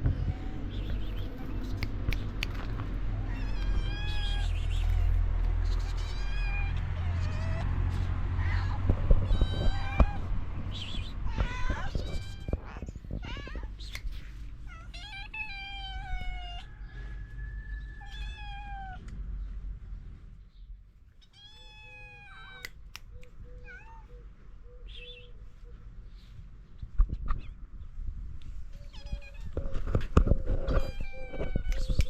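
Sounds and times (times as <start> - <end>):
cats meowing: 0.0 - 16.7, 17.9 - 19.1, 21.1 - 25.2, 28.7 - 32.0
cat chirps: 0.2 - 16.6, 28.7 - 29.8, 30.6 - 32.0.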